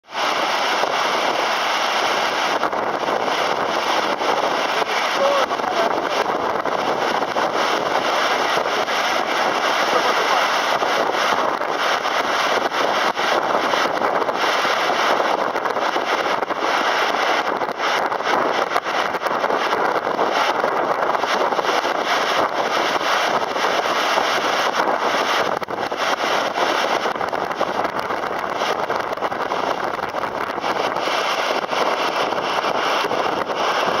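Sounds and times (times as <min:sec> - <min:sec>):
waterfall roaring: 0:00.0 - 0:34.0.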